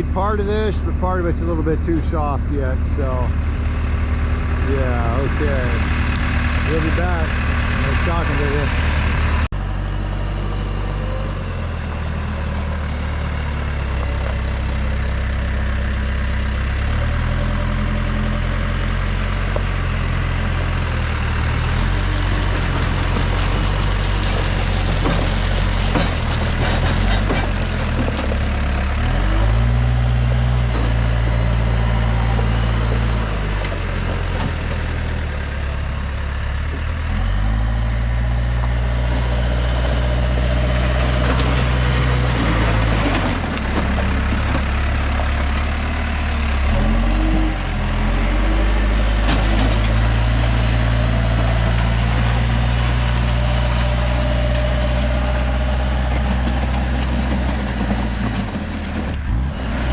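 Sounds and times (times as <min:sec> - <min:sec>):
diesel engine running: 0:00.0 - 0:59.9
rattling and clanking: 0:21.5 - 0:29.3.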